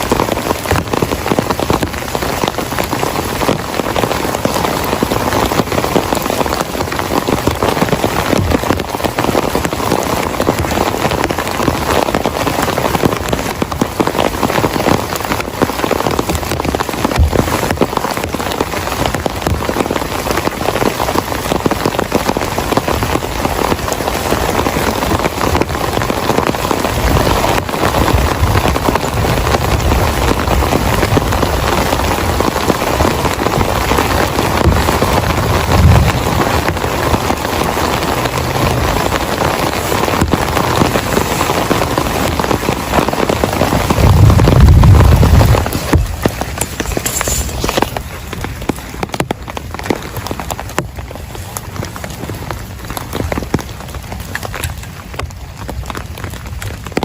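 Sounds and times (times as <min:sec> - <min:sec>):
heavy rain falling: 0:00.0 - 0:57.0
deep low rumble: 0:34.5 - 0:37.0, 0:43.8 - 0:46.4.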